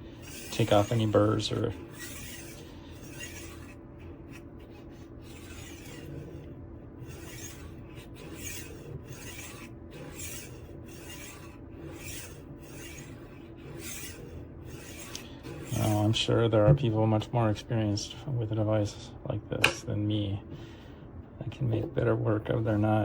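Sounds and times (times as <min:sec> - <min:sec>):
knife scraping on sharpener: 0:00.0 - 0:16.2.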